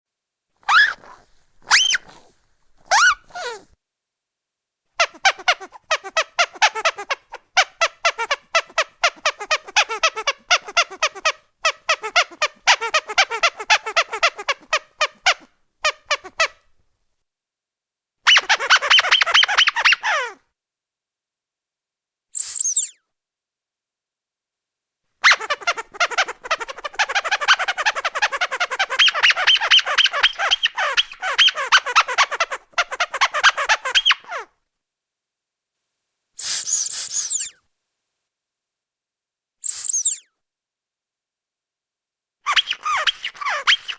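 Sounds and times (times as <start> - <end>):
rubber duck toy squeaking: 0.6 - 3.7, 5.0 - 16.7, 18.3 - 20.4, 22.4 - 23.0, 25.2 - 34.5, 36.4 - 37.6, 39.6 - 40.3, 42.5 - 43.9.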